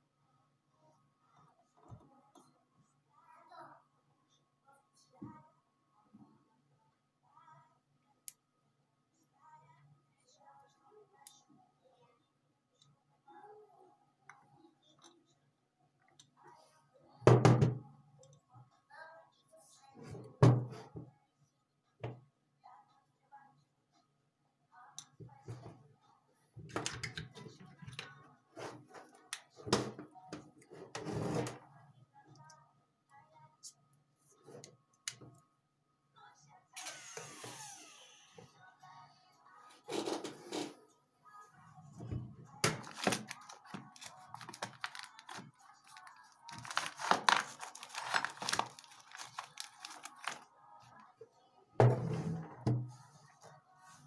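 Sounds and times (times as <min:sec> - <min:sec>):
faint background music: 0:00.0 - 0:54.0
small objects clicking and knocking: 0:42.6 - 0:50.4.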